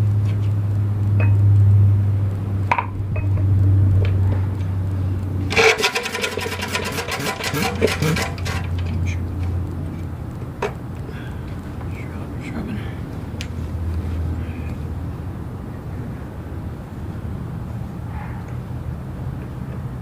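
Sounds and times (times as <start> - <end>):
small engine running: 5.4 - 9.5.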